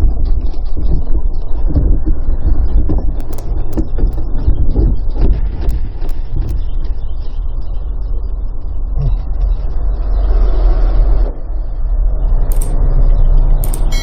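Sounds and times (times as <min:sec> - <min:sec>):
wind buffeting microphone: 0:00.0 - 0:13.6
sharp clicks: 0:03.2 - 0:04.3, 0:12.5 - 0:12.8, 0:13.6 - 0:14.0.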